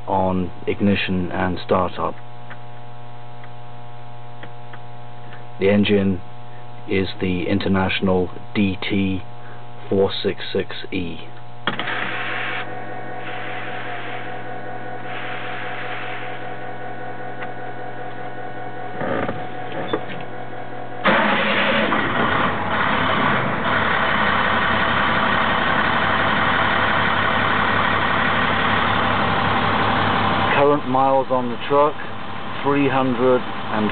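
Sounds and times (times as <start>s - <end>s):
steady hum: 0.0s - 33.9s
diesel engine cranking and firing: 11.6s - 12.8s, 21.0s - 30.5s
diesel engine idling: 12.0s - 33.9s.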